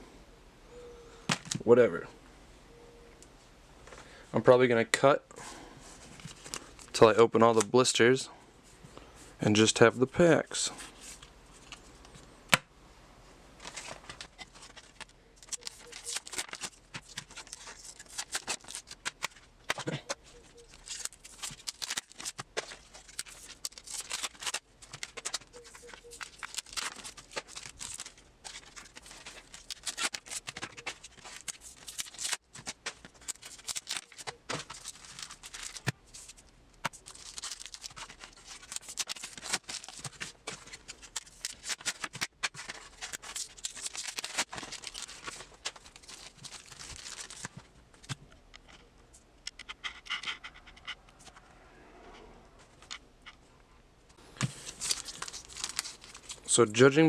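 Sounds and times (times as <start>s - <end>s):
plastic blister packaging crackling: 13.6s - 48.1s, 54.4s - 56.6s.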